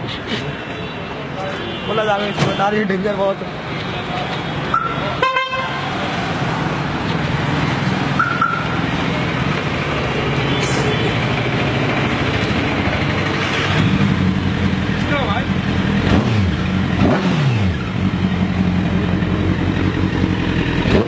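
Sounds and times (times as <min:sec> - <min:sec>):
road traffic: 0:00.0 - 0:21.0
motorcycle engine running: 0:11.1 - 0:21.0.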